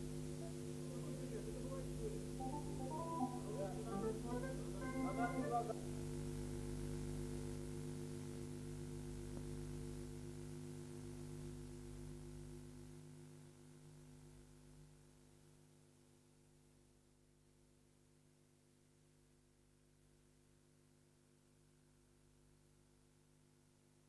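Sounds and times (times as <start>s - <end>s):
faint hiss: 0.0s - 8.6s
steady low hum: 0.0s - 14.6s.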